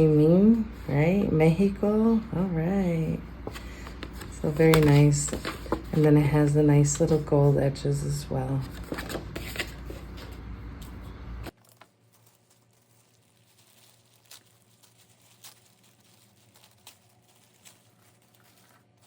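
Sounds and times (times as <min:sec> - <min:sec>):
paper and plastic packaging crinkling: 0:03.4 - 0:07.3, 0:08.0 - 0:19.0.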